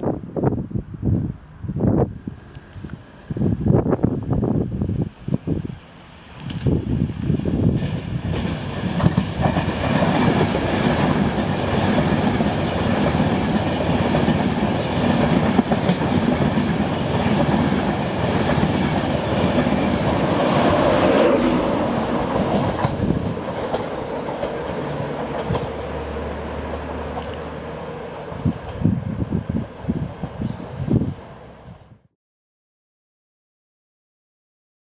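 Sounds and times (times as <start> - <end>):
train wheels clattering on rails: 6.3 - 27.4.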